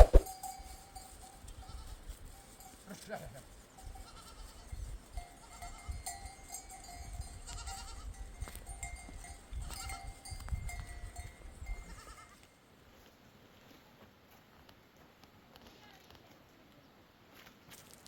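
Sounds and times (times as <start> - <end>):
animal bells clinking: 0.2 - 12.4.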